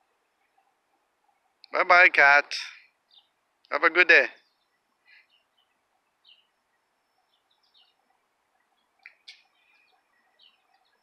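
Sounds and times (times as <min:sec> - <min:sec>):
faint bird chirps: 0:02.7 - 0:03.4, 0:04.4 - 0:11.0.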